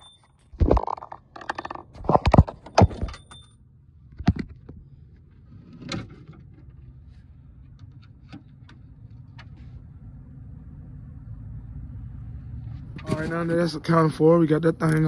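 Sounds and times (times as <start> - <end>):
tools clicking and knocking: 0.0 - 3.6
steady low rumble: 6.6 - 15.0.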